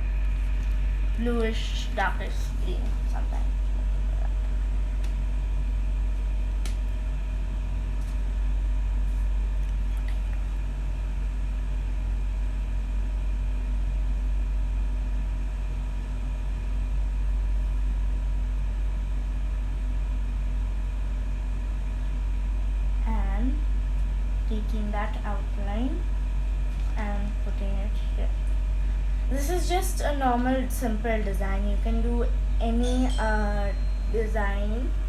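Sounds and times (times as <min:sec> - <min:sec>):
steady low hum: 0:00.0 - 0:35.0
faint high steady tones: 0:32.6 - 0:35.0.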